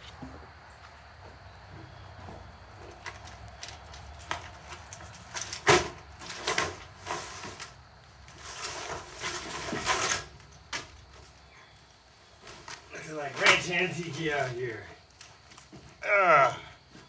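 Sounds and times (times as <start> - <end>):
metal scraping and rattling: 4.2 - 11.0.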